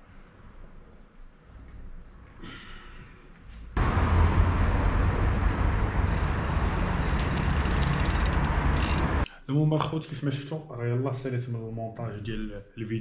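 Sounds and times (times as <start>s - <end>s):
road noise: 3.8s - 9.3s.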